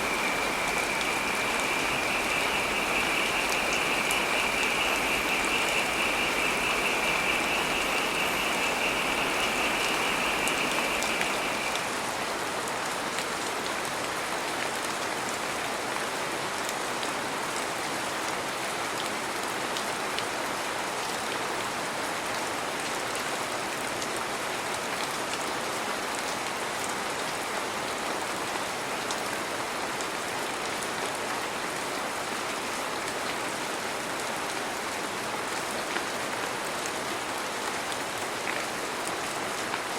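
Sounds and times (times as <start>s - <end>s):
high rapidly pulsing tone: 0.0s - 12.1s
heavy rain falling: 0.0s - 39.9s.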